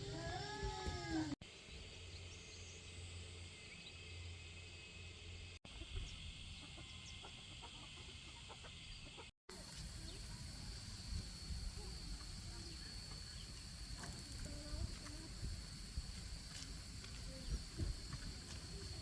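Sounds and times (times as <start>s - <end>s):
chickens clucking: 5.8s - 10.6s
insect drone: 9.5s - 19.0s.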